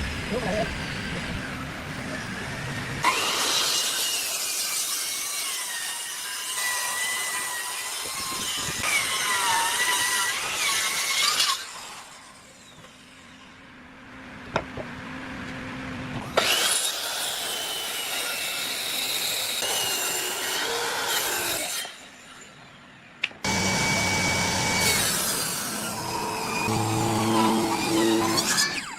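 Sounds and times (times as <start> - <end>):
power tool cutting wood: 3.0 - 13.2, 16.2 - 22.2, 23.4 - 28.9
low hum: 25.9 - 28.7.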